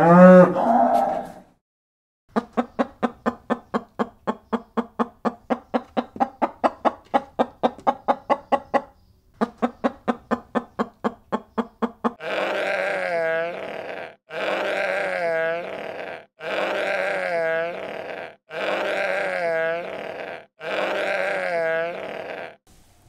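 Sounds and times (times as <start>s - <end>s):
chicken clucking: 2.3s - 12.8s
sheep bleating: 12.2s - 22.6s.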